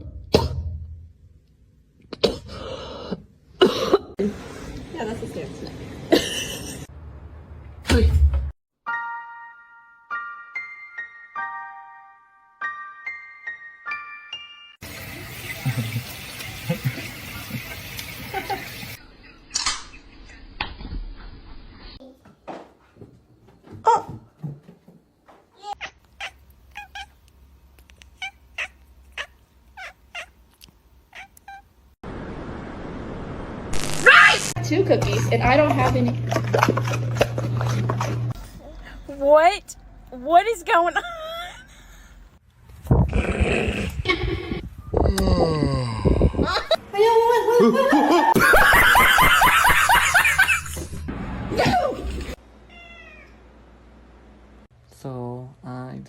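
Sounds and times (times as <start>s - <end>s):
cat meowing: 28.2s - 30.4s, 31.1s - 31.6s, 52.7s - 53.4s
person laughing hard: 43.9s - 44.7s, 45.6s - 46.8s, 47.4s - 50.9s.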